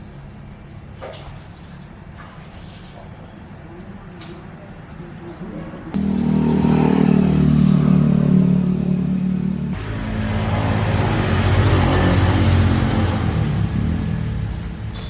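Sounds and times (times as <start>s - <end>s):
engine running: 6.0s - 15.0s.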